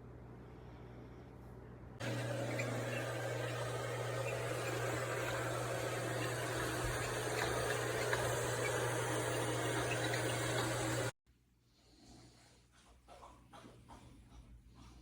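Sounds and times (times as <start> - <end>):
robot vacuum whirring: 2.0 - 11.1.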